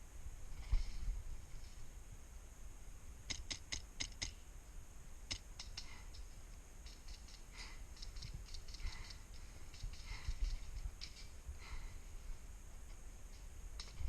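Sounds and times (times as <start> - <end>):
airsoft gun snapping clicks: 3.3 - 4.4.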